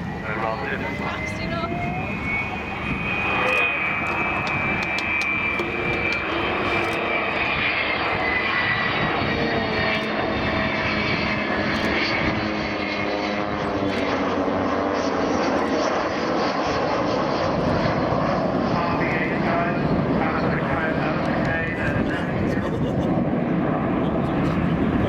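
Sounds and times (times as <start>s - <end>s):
whining engine tone: 0.0s - 18.2s
jet engines droning: 0.0s - 25.0s
propeller aircraft engines: 0.0s - 25.0s.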